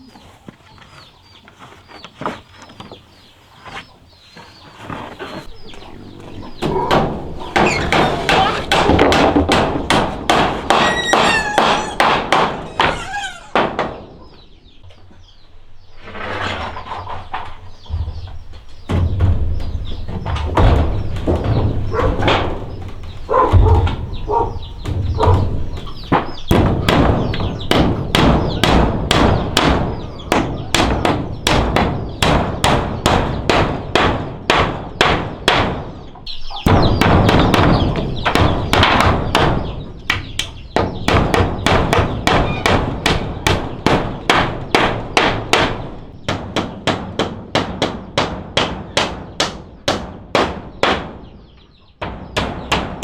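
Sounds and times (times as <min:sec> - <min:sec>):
chickens clucking: 0:00.0 - 0:33.4, 0:36.1 - 0:46.4
hammer blows on wood: 0:17.8 - 0:35.8.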